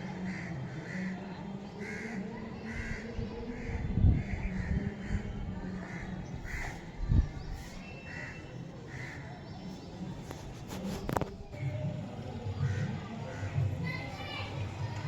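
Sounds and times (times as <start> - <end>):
crows cawing: 1.8 - 3.0.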